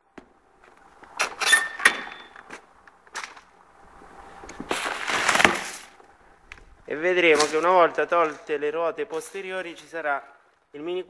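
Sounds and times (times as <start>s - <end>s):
short squeak: 1.2s - 2.4s.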